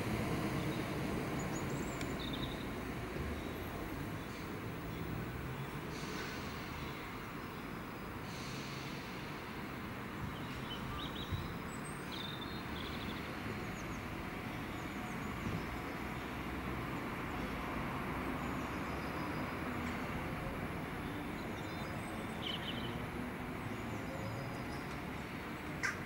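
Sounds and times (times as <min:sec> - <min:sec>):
electric train rumble and hum: 0:00.0 - 0:05.2.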